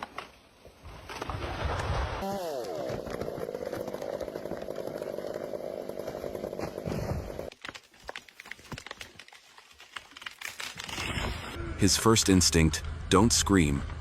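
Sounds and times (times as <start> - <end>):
chainsaw engine at high revs: 2.2 - 6.8.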